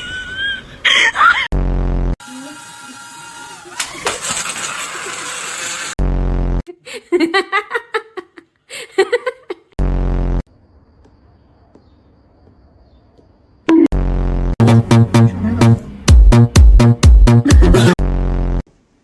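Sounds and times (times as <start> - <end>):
buzzing fart sound effect: 1.5 - 2.2, 5.9 - 6.7, 9.8 - 10.5, 13.7 - 15.2, 16.4 - 18.6.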